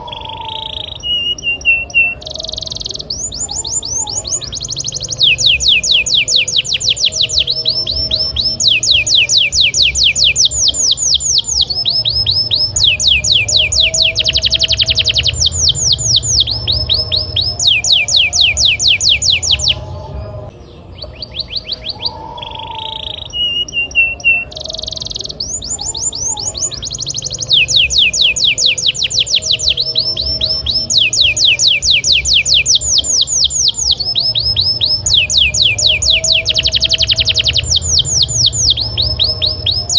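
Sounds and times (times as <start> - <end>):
canary singing trills: 0.0 - 39.9
low steady hum: 2.4 - 21.2.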